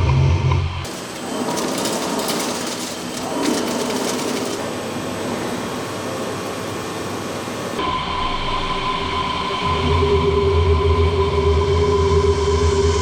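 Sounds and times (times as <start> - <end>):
machine drive running with rattling: 0.0 - 5.4
machine hum with whine: 0.0 - 13.0.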